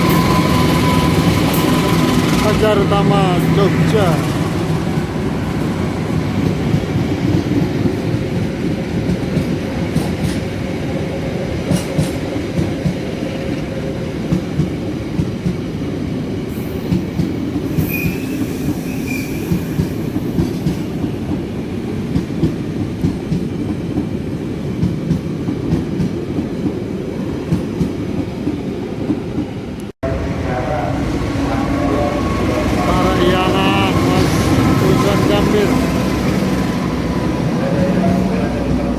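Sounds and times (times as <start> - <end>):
high wheel squeal: 0.0 - 4.5, 17.7 - 20.0
loud train rumble: 0.0 - 38.9.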